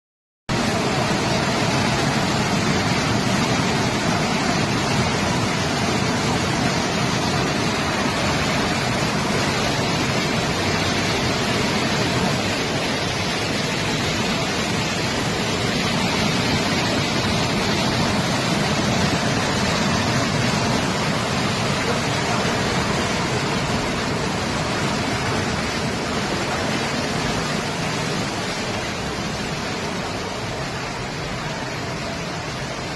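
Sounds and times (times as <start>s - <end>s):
floodwater rushing: 0.5s - 32.9s.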